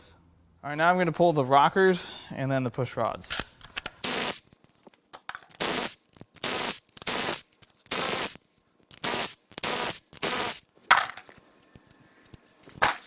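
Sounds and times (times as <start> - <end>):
power ratchet spinning: 4.0 - 4.5, 5.5 - 10.7.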